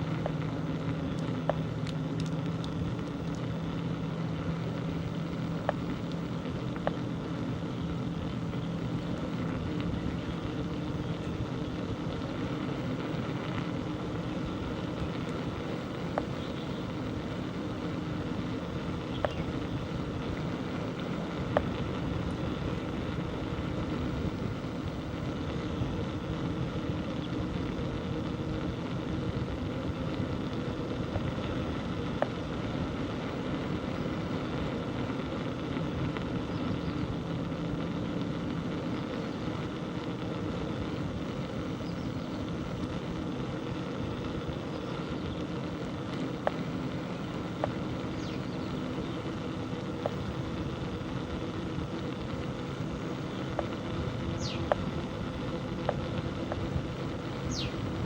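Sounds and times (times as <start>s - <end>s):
bicycle rolling noise: 0.0s - 58.0s
sharp clicks and ticks: 0.1s - 3.8s, 4.8s - 7.1s, 18.7s - 23.3s, 53.4s - 58.0s.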